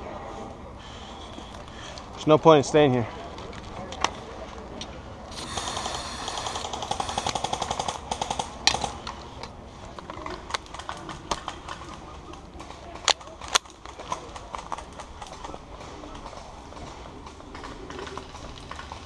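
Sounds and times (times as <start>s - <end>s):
rapid pulsed buzzing: 5.3s - 8.1s.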